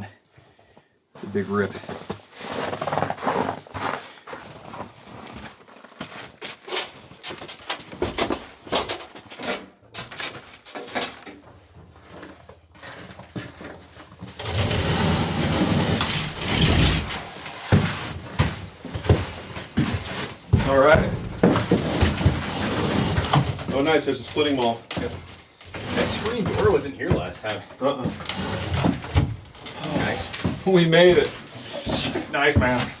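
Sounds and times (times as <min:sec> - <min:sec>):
loud rustling: 0:14.4 - 0:17.5, 0:19.9 - 0:23.6
cabin door knocks and clunks: 0:20.6 - 0:22.4.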